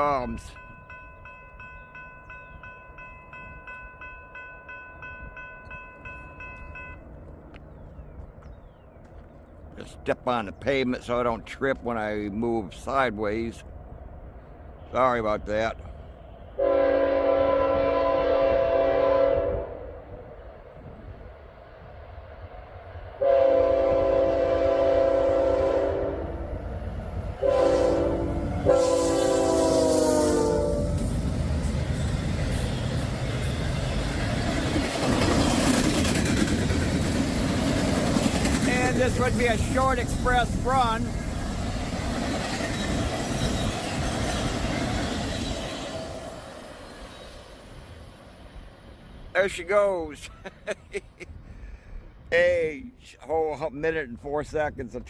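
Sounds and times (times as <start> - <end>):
railroad crossing bell ringing: 0.0 - 7.3
low rumble of train: 0.0 - 52.6
locomotive air horn blasts: 16.5 - 20.0, 23.2 - 26.4, 27.4 - 31.1.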